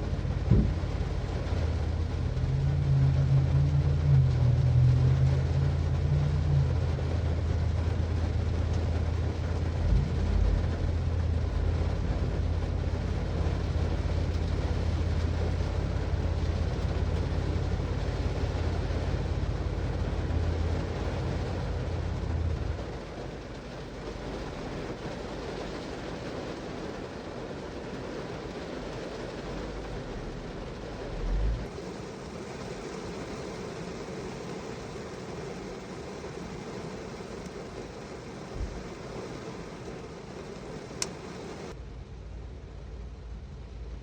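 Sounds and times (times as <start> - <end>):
deep hum: 0.0 - 25.2, 29.4 - 31.8
constant low rumble: 0.0 - 44.0
rain falling on a car: 0.0 - 44.0
low thump: 0.3 - 2.4.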